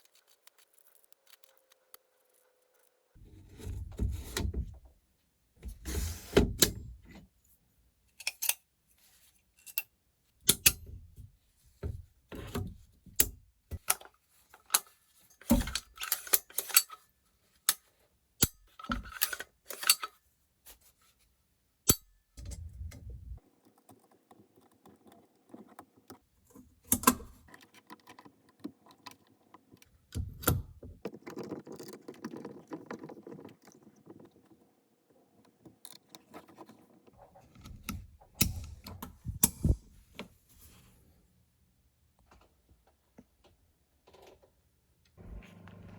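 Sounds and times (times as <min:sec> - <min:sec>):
metal gun parts clicking: 0:13.8 - 0:17.0, 0:18.4 - 0:20.2
low hum: 0:22.4 - 0:23.4.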